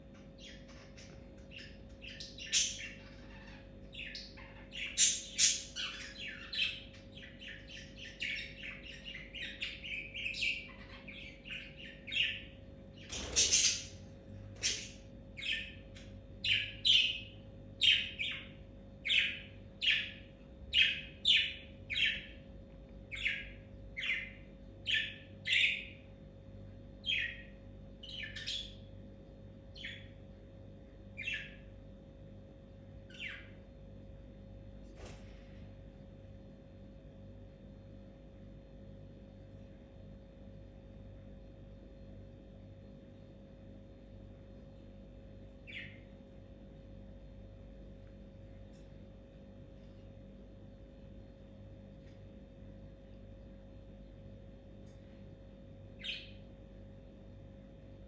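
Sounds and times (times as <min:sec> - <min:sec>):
bird chirping: 0:00.2 - 0:22.4, 0:23.1 - 0:26.0, 0:27.0 - 0:28.9, 0:29.7 - 0:30.2, 0:31.2 - 0:31.7, 0:33.1 - 0:33.6, 0:45.6 - 0:46.1, 0:56.0 - 0:56.4
bird squawk: 0:00.4 - 0:12.4, 0:13.1 - 0:15.8.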